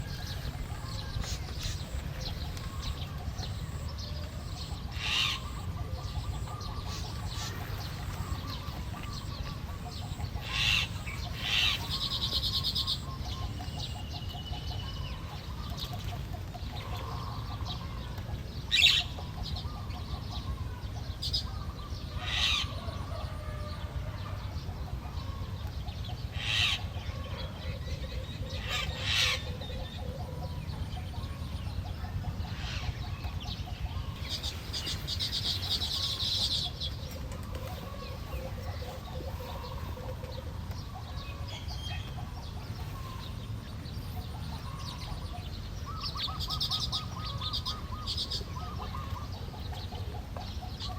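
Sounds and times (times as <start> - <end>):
bird trilling: 0.0 - 15.6
birds calling: 0.0 - 50.9.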